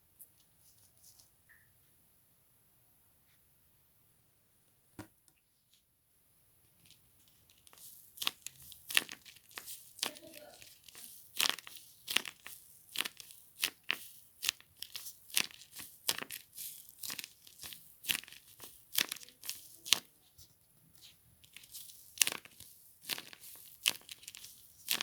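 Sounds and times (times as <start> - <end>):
paper and tape crinkling: 6.8 - 25.0.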